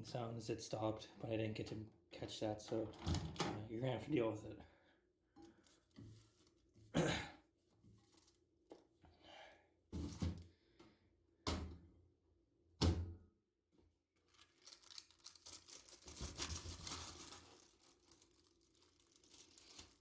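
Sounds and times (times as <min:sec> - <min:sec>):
wrapping crinkling and tearing: 0:05.5 - 0:06.7, 0:08.0 - 0:08.4, 0:14.2 - 0:20.0.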